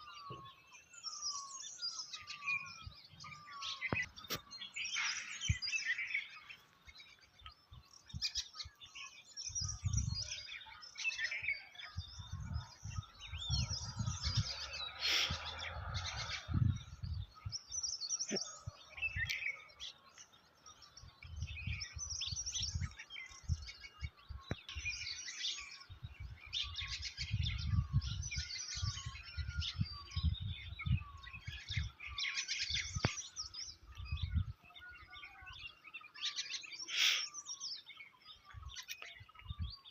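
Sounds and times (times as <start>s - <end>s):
songbirds chirping and singing: 0.0s - 39.9s
short bird call: 36.9s - 37.4s.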